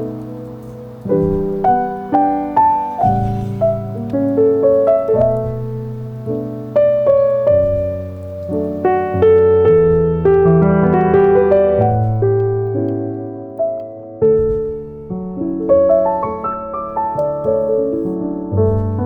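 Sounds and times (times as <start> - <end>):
calm piano music: 0.0 - 19.0.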